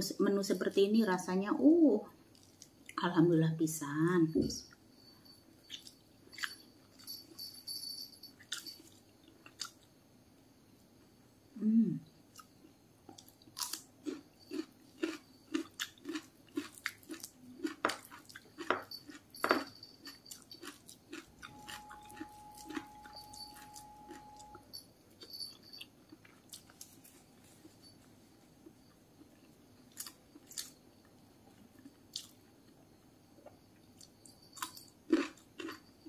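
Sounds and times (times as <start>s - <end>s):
person chewing cucumber: 8.4s - 9.9s, 12.3s - 24.6s, 25.2s - 27.8s, 28.6s - 30.8s, 31.5s - 32.5s, 33.4s - 36.0s.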